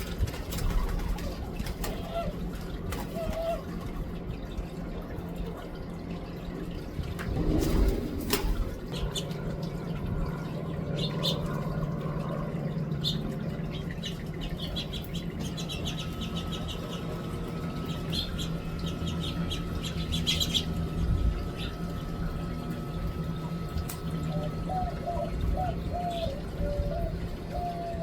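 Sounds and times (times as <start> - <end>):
steady low hum: 0.0 - 28.0
finches chirping: 17.8 - 20.8.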